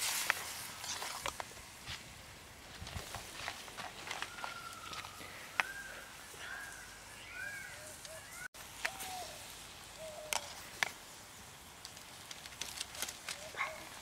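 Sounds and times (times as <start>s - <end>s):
short chirping bird calls: 6.5s - 9.4s.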